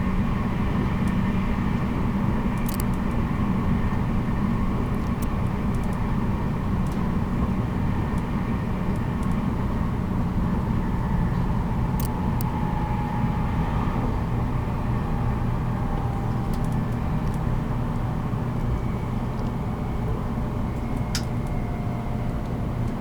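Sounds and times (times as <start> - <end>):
train wheels rumbling on rail: 0.0 - 23.0
light clicks: 2.6 - 3.1.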